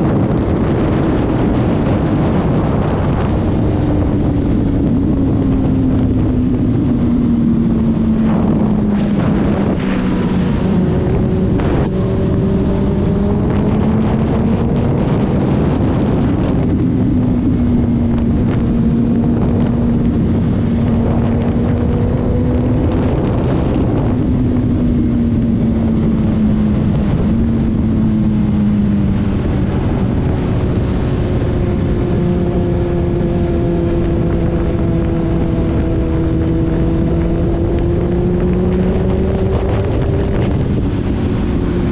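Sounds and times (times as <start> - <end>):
car engine drone: 0.0 - 41.9
wind and road noise: 0.0 - 41.9.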